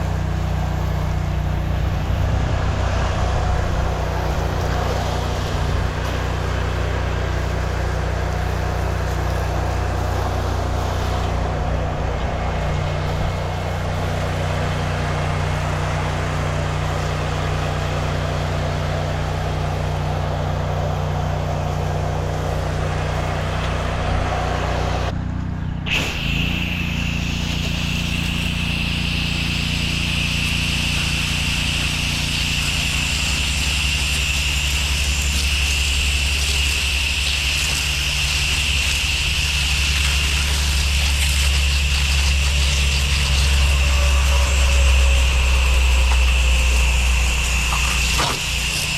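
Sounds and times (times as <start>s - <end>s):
engine running: 0.0s - 48.9s
steady high hiss: 25.9s - 48.9s.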